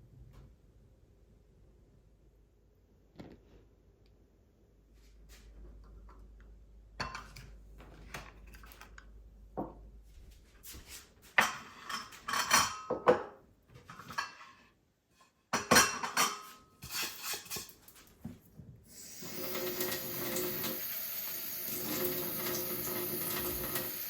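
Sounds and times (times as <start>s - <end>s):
dishes and cutlery clattering: 7.0s - 7.5s, 11.4s - 14.6s, 15.5s - 17.8s.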